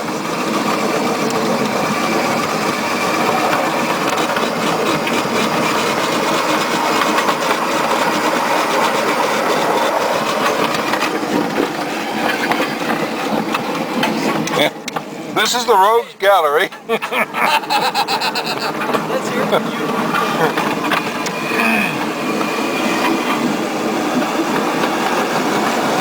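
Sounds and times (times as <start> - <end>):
rail clicks: 0.0 - 26.0
tram wheels rumbling on rails: 0.0 - 26.0.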